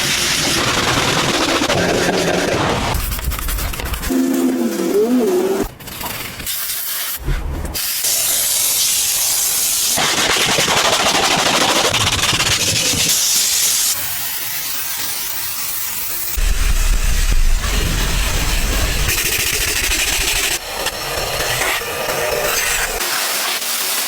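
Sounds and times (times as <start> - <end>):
pressure washer spray hissing: 7.8 - 10.0.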